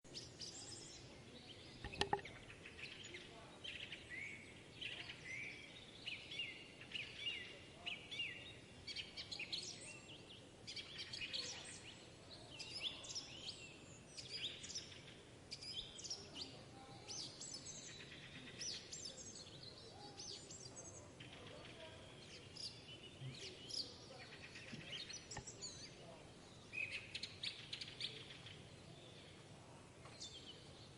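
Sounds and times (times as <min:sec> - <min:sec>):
forest birds chorus: 0:00.1 - 0:30.9
sharp knock: 0:01.8 - 0:02.3.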